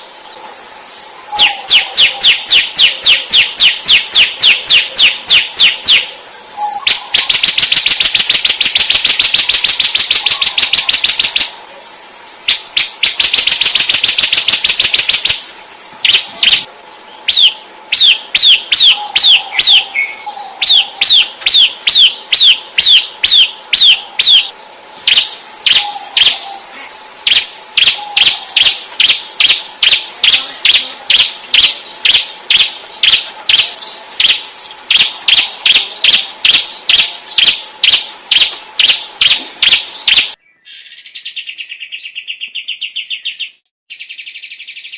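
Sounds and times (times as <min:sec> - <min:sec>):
high insect-like buzz: 0:00.0 - 0:16.7, 0:20.6 - 0:40.4
bird whistling sharp notes: 0:00.4 - 0:11.5, 0:17.3 - 0:41.3.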